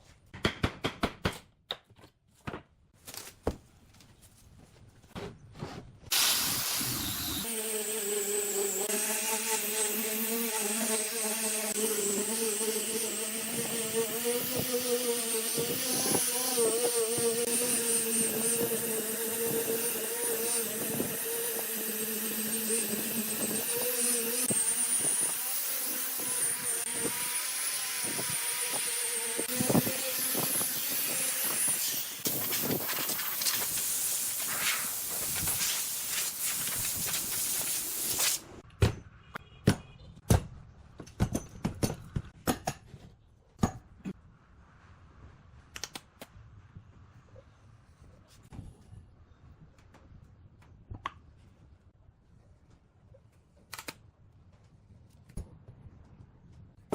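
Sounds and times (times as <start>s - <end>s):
woodworking power tool whining: 6.2s - 34.5s.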